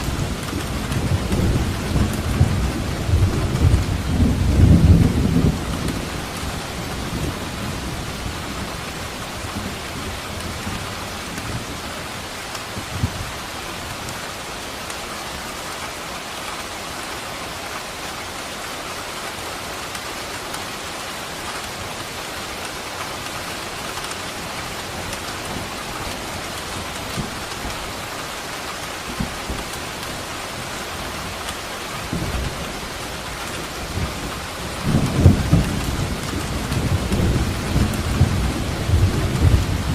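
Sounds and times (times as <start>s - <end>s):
thunder rumbling: 0.0s - 11.7s, 29.0s - 39.9s
steady rain: 0.0s - 39.9s.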